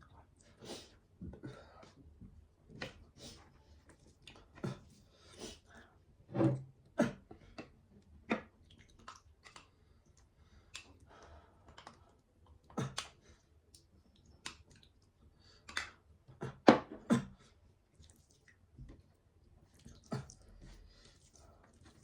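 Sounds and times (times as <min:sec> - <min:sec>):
wet mouth clicks and smacks: 0:12.8 - 0:15.0.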